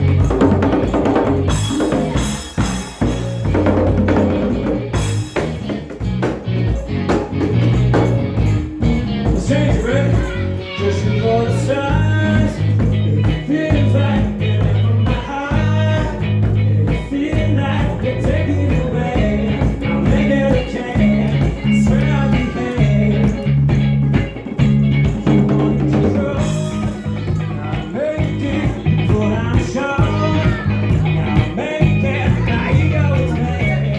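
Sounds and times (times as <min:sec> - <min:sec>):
blues-rock band playing: 0:00.0 - 0:33.9
person singing: 0:06.6 - 0:33.9.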